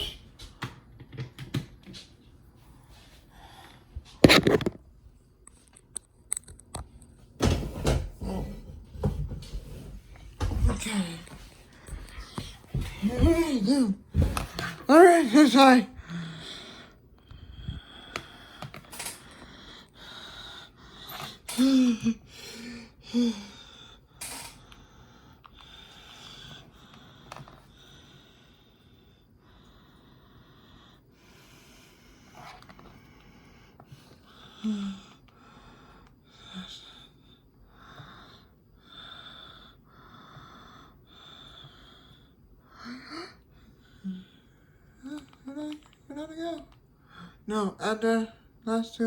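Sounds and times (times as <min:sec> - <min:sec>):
person breathing heavily: 0:15.9 - 0:45.0.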